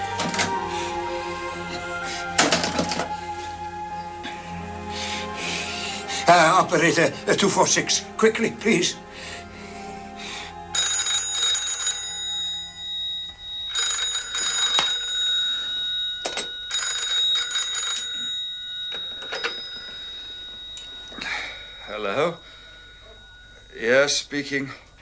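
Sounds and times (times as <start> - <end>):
telephone bell ringing: 10.7 - 24.1.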